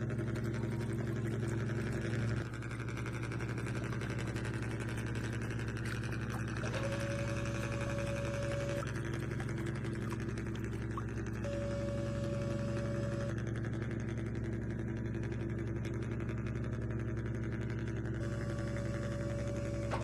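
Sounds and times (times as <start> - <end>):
remote-control truck motor hum: 0.0 - 13.4, 18.2 - 20.0.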